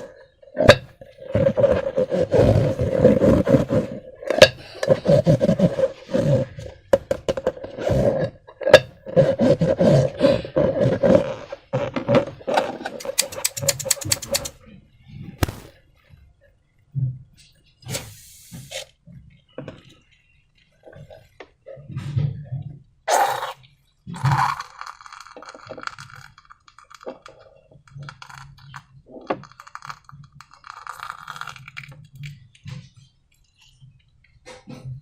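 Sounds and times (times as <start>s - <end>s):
slime squishing and crackling: 15.4s - 15.7s.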